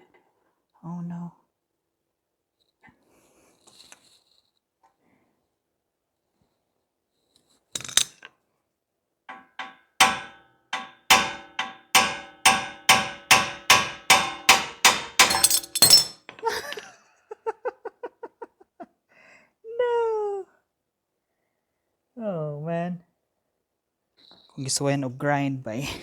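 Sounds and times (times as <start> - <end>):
hammer striking steel: 9.3 - 16.3.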